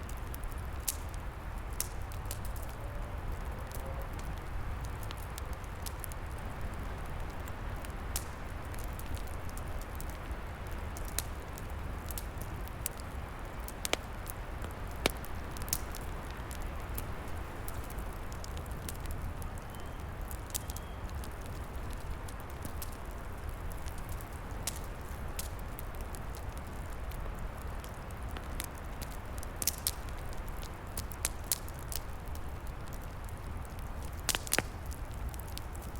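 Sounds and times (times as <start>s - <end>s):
wood fire crackling and popping: 0.0s - 35.9s.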